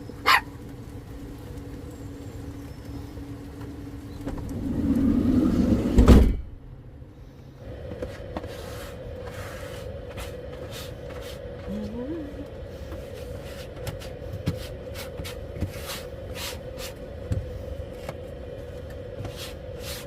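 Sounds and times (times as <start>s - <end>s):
rain hissing: 0.0s - 20.0s
steady low hum: 0.0s - 20.0s
van sliding door closing: 4.2s - 6.7s.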